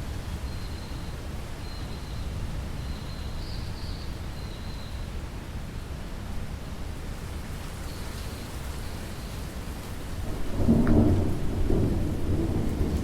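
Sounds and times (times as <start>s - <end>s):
steady rainfall: 5.1s - 13.0s
thunder rumbling: 10.1s - 13.0s.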